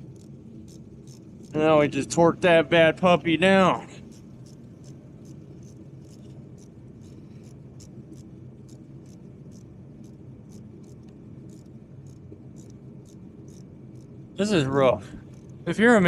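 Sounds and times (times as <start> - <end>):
ratchet wrench clicking: 0.0 - 1.6
steady low hum: 0.0 - 16.0.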